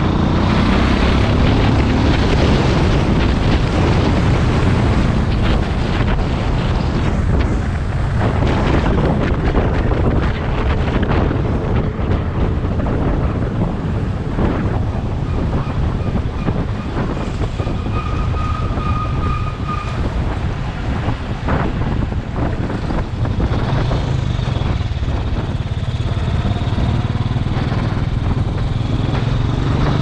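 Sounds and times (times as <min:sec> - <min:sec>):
wind buffeting microphone: 0:00.0 - 0:30.0
motorcycle engine running: 0:22.1 - 0:30.0.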